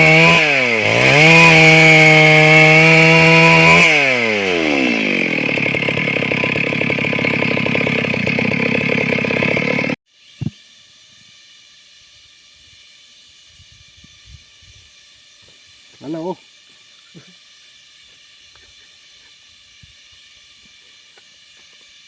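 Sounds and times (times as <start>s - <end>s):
chainsaw engine idling: 0.0s - 10.0s.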